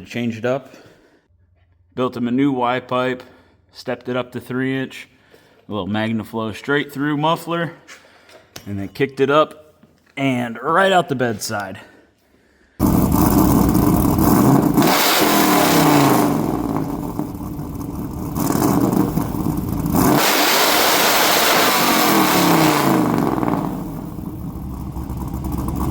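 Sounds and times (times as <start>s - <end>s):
car engine revving: 12.8s - 25.9s.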